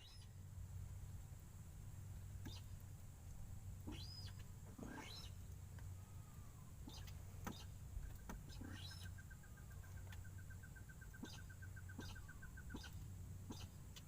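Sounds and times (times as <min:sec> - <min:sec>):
birds chirping: 0:00.0 - 0:00.4, 0:02.3 - 0:02.8, 0:03.8 - 0:14.0
low steady hum: 0:00.0 - 0:14.0.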